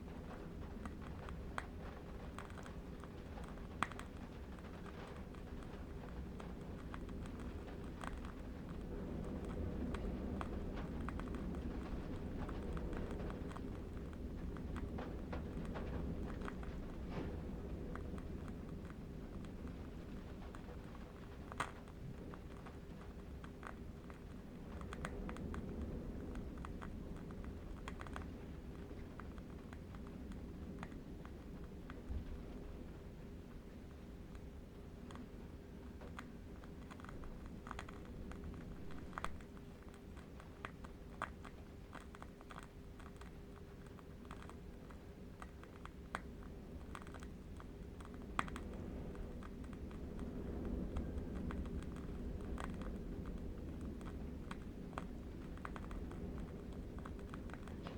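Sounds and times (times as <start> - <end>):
distant wind rumble: 0.0 - 42.0, 44.2 - 57.9
candle wick crackling: 35.2 - 57.9.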